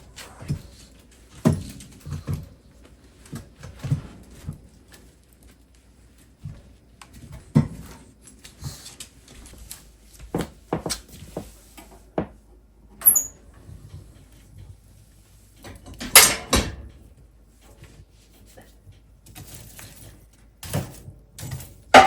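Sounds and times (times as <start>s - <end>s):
objects knocking and clunking: 0.0s - 5.2s, 6.4s - 8.2s, 10.2s - 12.5s, 18.7s - 22.0s.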